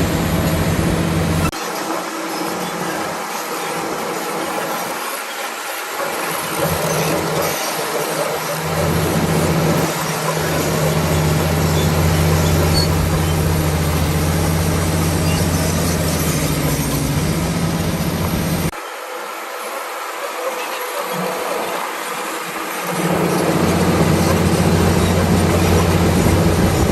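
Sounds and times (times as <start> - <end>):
bulldozer diesel engine: 0.0 - 1.5, 6.2 - 18.8, 22.8 - 26.9.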